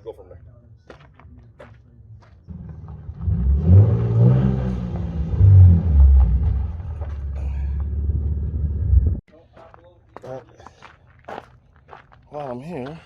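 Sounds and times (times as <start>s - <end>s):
car engine accelerating: 2.5s - 9.2s.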